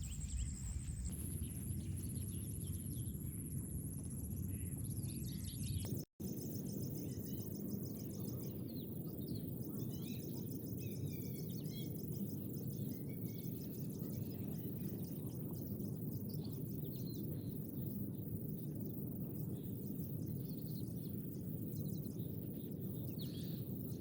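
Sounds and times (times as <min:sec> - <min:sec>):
insects chirping: 0:00.0 - 0:05.8
steady low rumble: 0:00.0 - 0:06.1.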